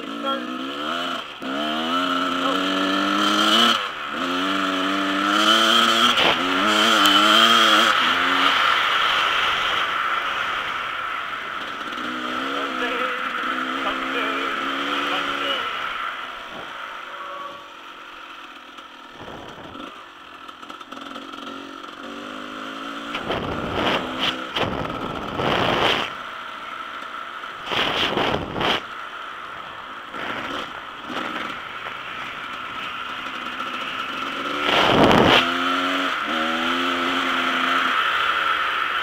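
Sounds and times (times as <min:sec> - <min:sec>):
dirt bike engine revving: 0:00.0 - 0:39.0
rushes of loud noise: 0:23.0 - 0:26.3, 0:27.5 - 0:28.9, 0:30.1 - 0:38.4.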